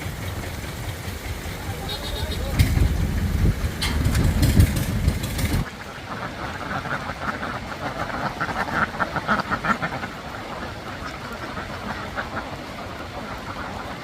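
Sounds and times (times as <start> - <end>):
low engine rumble: 0.0 - 7.6
ducks quacking: 1.4 - 3.2, 5.3 - 14.0.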